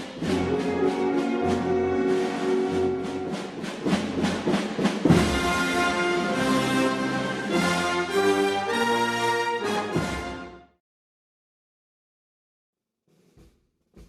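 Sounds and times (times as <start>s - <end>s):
drum strokes: 0.0s - 6.7s
brass chords: 0.0s - 10.8s.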